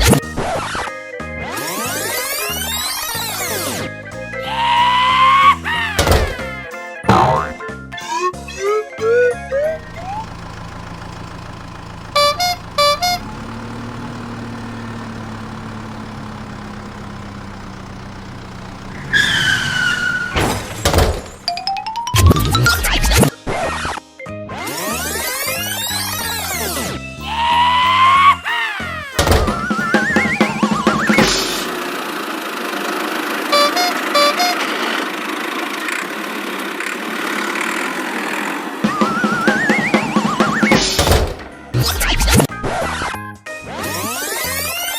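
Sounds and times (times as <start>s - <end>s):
music with wobbling rising tone: 0.0s - 10.3s, 21.6s - 32.4s, 37.7s - 44.9s
cartoon engine hum: 0.0s - 24.0s, 24.6s - 44.9s
falling tone: 7.1s - 7.7s
horn toots: 12.1s - 13.7s, 33.5s - 35.0s
noisy clattering: 20.0s - 21.5s.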